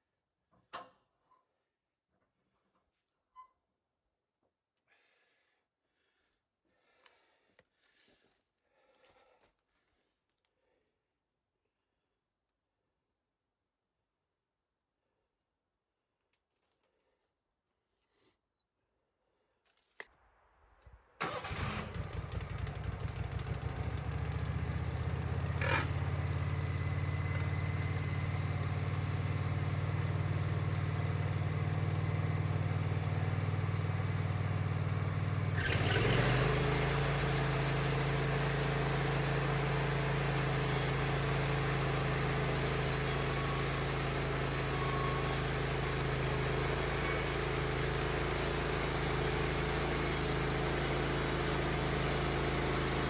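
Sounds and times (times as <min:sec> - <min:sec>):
sawmill engine cranking and running: 0:21.2 - 0:53.0.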